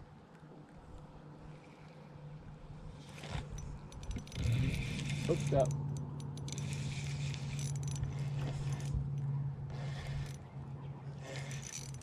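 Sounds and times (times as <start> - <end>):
steady low hum: 0.0 - 12.0
fishing reel clicking and whirring: 3.1 - 10.4, 11.2 - 12.0.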